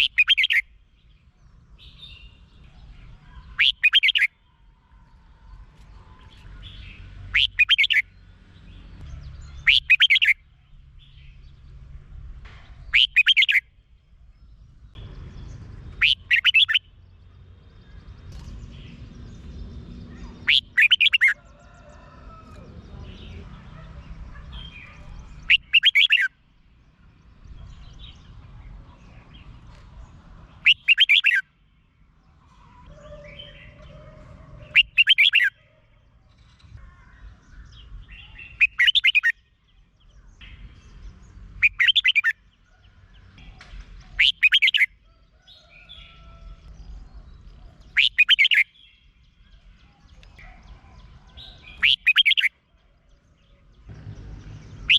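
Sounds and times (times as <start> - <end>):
bird singing song phrases: 0.0 - 54.9
faint chatter: 21.4 - 25.7.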